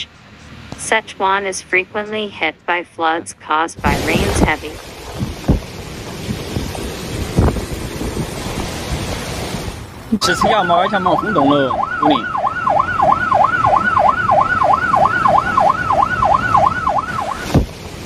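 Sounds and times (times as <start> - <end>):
emergency siren yelping: 10.2 - 17.7.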